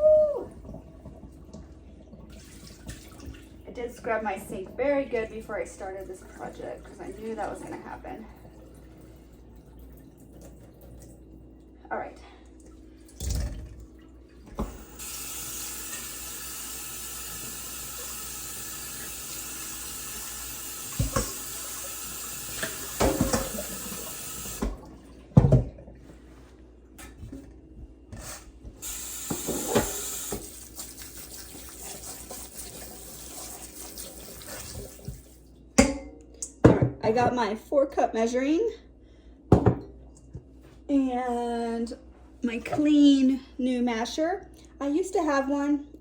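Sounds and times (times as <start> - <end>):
tap water running into sink: 0.0 - 11.2, 13.1 - 25.8, 28.8 - 35.4
knocks of things in sink: 21.0 - 21.4, 22.6 - 23.7, 39.5 - 39.9.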